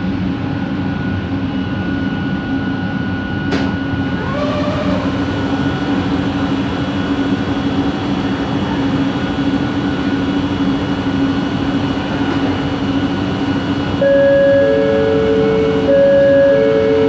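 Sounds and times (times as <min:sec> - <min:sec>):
train running: 0:03.4 - 0:17.0
high steady tones: 0:14.0 - 0:17.0.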